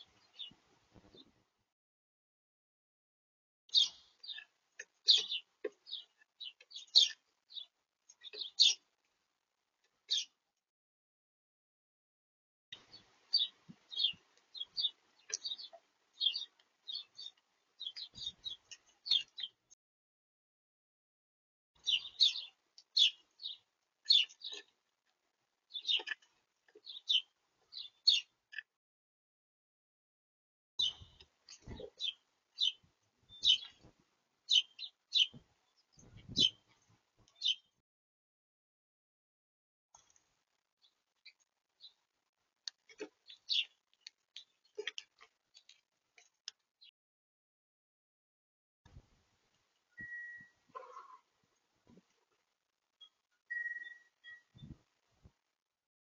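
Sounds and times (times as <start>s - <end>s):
small birds chirping: 0.0s - 1.4s, 3.7s - 9.0s, 9.8s - 10.4s, 12.8s - 19.8s, 21.8s - 28.8s, 30.8s - 37.8s, 39.9s - 47.0s, 49.7s - 51.3s, 53.0s - 54.8s.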